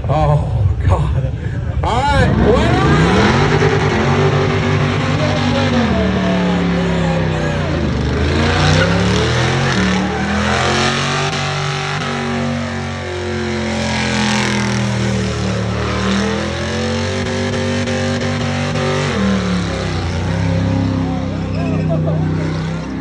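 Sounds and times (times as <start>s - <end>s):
truck engine at high revs: 2.0s - 23.0s.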